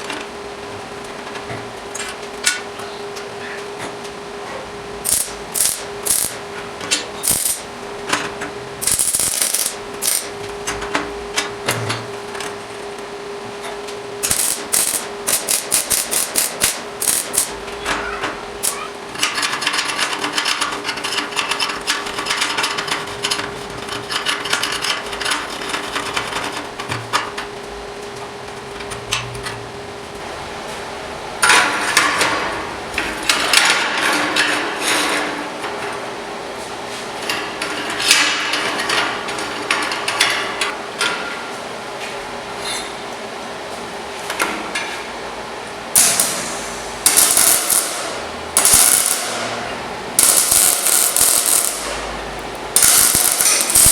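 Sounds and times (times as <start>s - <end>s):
steady hum: 0.0s - 31.4s, 45.3s - 53.9s.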